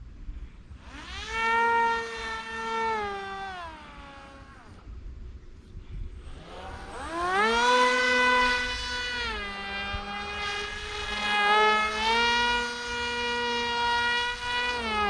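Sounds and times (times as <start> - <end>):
model plane motor whining: 0.7 - 4.9, 6.1 - 15.0.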